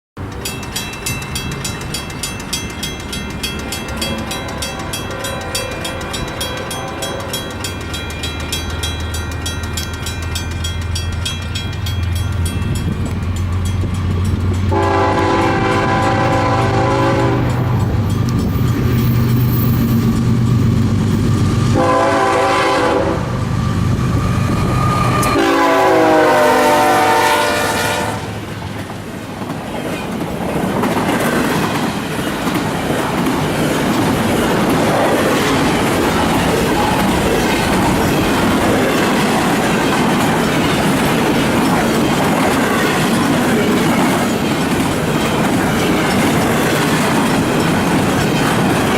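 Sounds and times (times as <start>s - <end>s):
train wheels clacking on rails: 0.2s - 48.9s
locomotive horn blasts: 4.0s - 7.6s, 14.7s - 17.8s, 21.7s - 23.4s, 24.6s - 28.5s.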